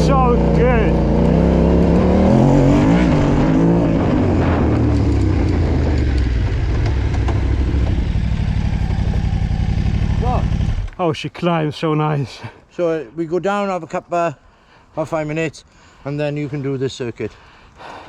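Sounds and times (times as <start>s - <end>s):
low engine throb: 0.0s - 10.9s
motorcycle engine revving: 0.0s - 11.0s.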